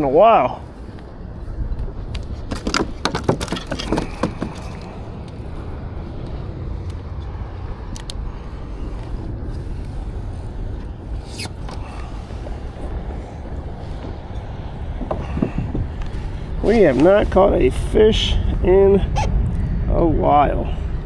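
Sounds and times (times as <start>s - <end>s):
wind buffeting microphone: 0.0s - 21.0s
knocks and rattles of gear: 2.2s - 5.0s.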